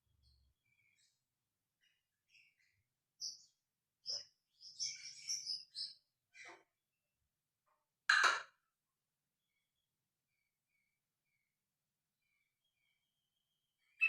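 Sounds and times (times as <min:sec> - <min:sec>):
bird chirping: 0:00.1 - 0:06.7, 0:12.2 - 0:14.0.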